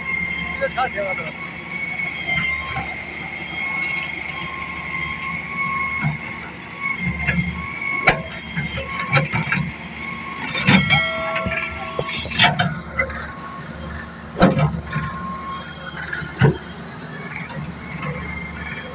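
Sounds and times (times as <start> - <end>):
excavator engine rumbling: 0.0 - 18.9
high whine: 10.3 - 18.9.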